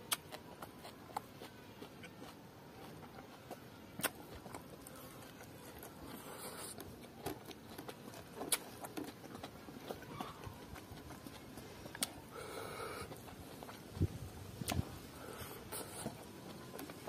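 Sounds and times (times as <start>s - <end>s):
wet mouth clicks and smacks: 0.0s - 2.2s, 3.3s - 4.6s, 6.4s - 10.0s, 10.7s - 12.2s, 14.6s - 14.9s
person chewing food: 0.0s - 17.0s.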